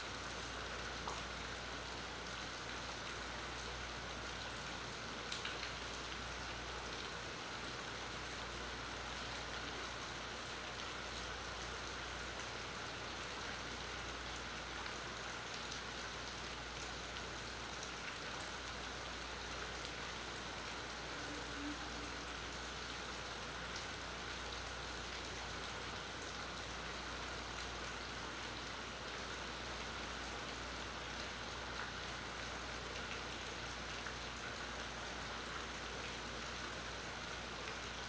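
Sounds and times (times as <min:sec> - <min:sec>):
steady rain falling: 0:00.0 - 0:38.0
raindrop ticks: 0:05.3 - 0:05.8.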